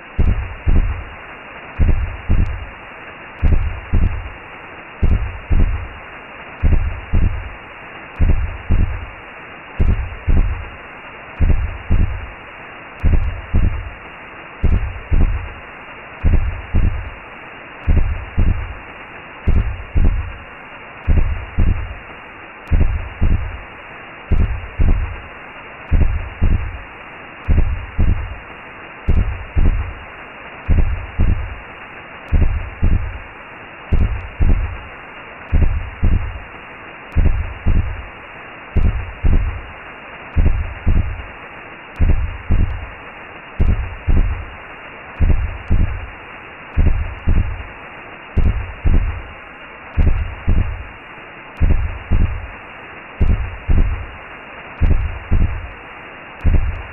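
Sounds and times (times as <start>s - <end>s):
whooshing hiss: 0.0s - 56.9s
heartbeat thumping: 0.1s - 1.1s, 1.8s - 2.7s, 3.4s - 4.3s, 5.0s - 5.9s, 6.6s - 7.5s, 8.2s - 9.1s, 9.8s - 10.7s, 11.4s - 12.3s, 13.0s - 13.9s, 14.6s - 15.6s, 16.2s - 17.2s, 17.8s - 18.8s, 19.5s - 20.4s, 21.0s - 22.0s, 22.7s - 23.6s, 24.3s - 25.2s, 25.9s - 26.8s, 27.5s - 28.4s, 29.1s - 30.0s, 30.7s - 31.6s, 32.3s - 33.2s, 33.9s - 34.8s, 35.5s - 36.4s, 37.1s - 38.0s, 38.8s - 39.7s, 40.4s - 41.3s, 42.0s - 42.9s, 43.6s - 44.5s, 45.2s - 46.1s, 46.8s - 47.7s, 48.4s - 49.3s, 50.0s - 50.9s, 51.6s - 52.5s, 53.2s - 54.1s, 54.8s - 55.8s, 56.4s - 56.9s.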